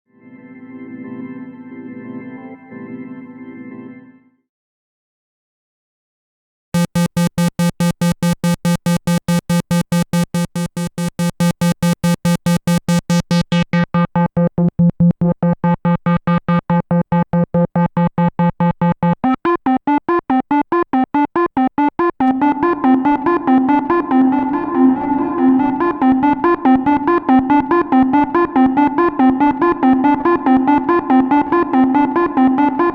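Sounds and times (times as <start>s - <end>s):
synthesizer repeating short notes: 6.8s - 32.9s.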